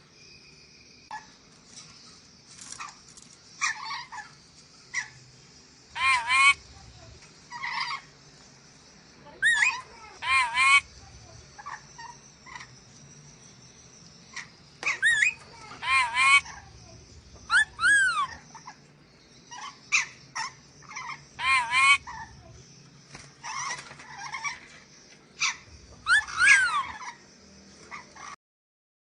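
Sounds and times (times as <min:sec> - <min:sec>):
parrot screeching: 0:06.0 - 0:06.6, 0:09.4 - 0:10.9, 0:14.9 - 0:16.6, 0:17.5 - 0:18.4, 0:19.5 - 0:22.3, 0:25.4 - 0:27.2.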